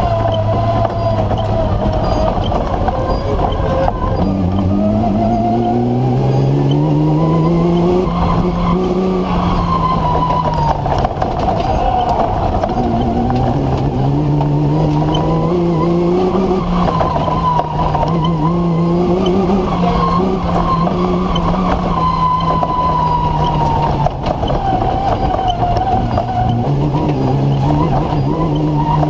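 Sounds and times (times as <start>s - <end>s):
car engine revving hard: 0.0s - 29.0s
gravel and tyre noise: 0.0s - 29.0s.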